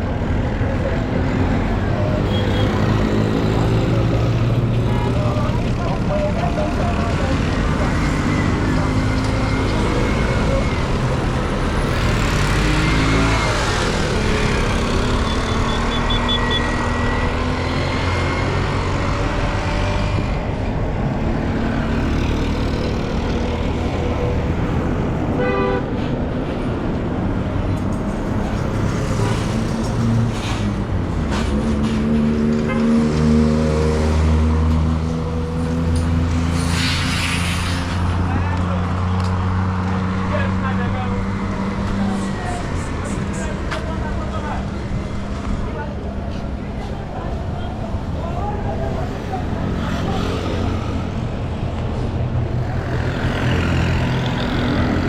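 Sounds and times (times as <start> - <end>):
car and truck engines: 0.0 - 55.0
roadway din: 0.0 - 55.0
car horn toots: 25.4 - 25.9.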